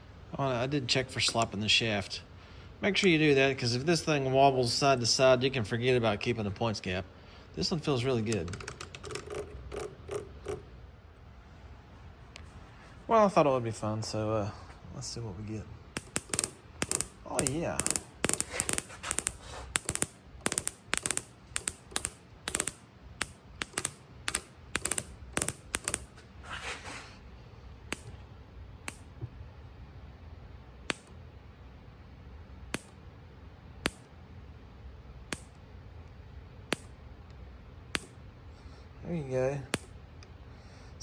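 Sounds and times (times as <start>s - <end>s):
ignition spark snapping clicks: 1.2s - 1.6s, 16.0s - 26.1s, 27.9s - 28.2s, 28.9s - 29.1s, 30.9s - 31.2s, 32.7s - 33.0s, 33.8s - 34.1s, 35.3s - 35.6s, 36.7s - 36.9s, 37.9s - 38.2s, 39.7s - 39.9s.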